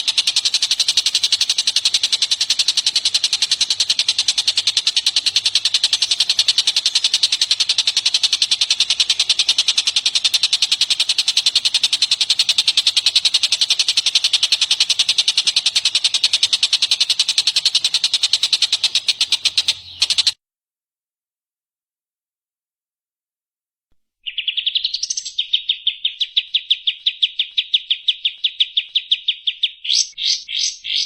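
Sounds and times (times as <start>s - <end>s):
bird rattling call: 0.0s - 20.4s, 24.3s - 31.0s.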